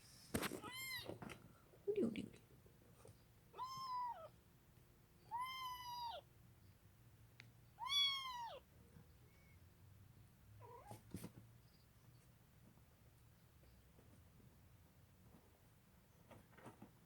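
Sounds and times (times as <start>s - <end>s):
kitten meowing: 3.5s - 4.3s, 5.3s - 6.2s, 7.8s - 8.6s.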